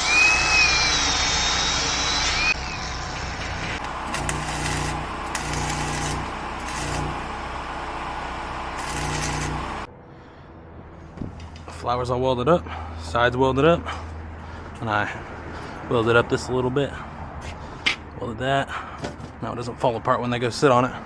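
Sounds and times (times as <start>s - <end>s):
whining power tool: 0.0s - 3.2s, 3.8s - 9.9s
arc welding crackling: 2.1s - 9.9s
steady machine hum: 2.5s - 10.8s.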